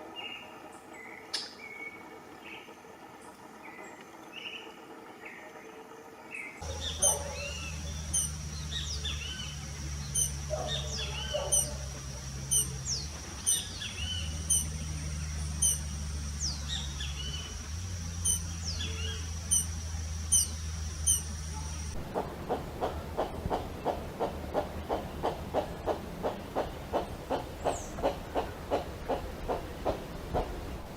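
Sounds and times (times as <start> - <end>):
low hum: 0.5 - 30.9
steady high whine: 4.9 - 30.9
birds chirping: 6.3 - 30.9.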